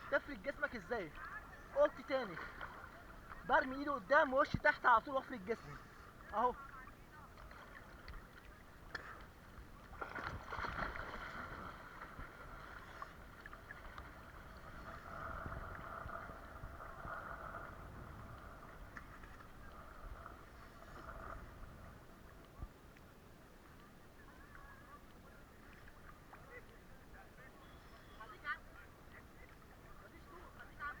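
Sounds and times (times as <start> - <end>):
water splashing: 0.0 - 31.0.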